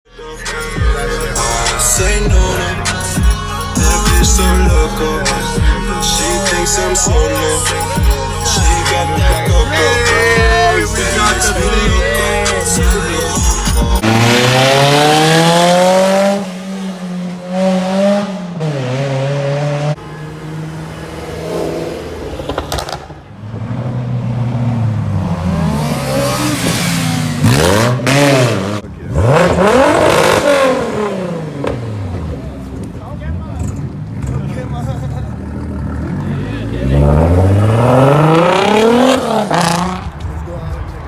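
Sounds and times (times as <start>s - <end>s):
car engine revving hard: 14.0s - 32.6s, 35.6s - 40.2s.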